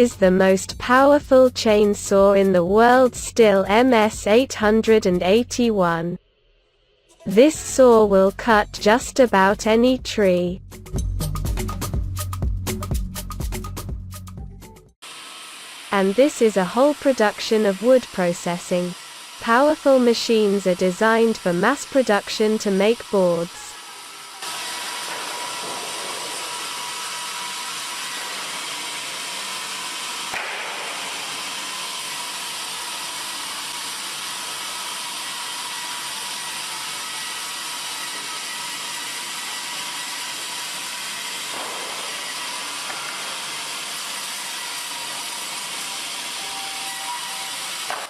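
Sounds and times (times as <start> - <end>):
sawmill machinery hissing: 15.0 - 48.0.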